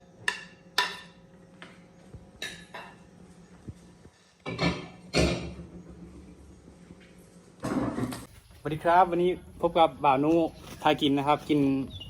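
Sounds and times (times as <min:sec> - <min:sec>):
dishes clattering: 0:02.4 - 0:03.0, 0:04.4 - 0:05.7
dishes clinking: 0:02.4 - 0:03.0, 0:04.4 - 0:05.7.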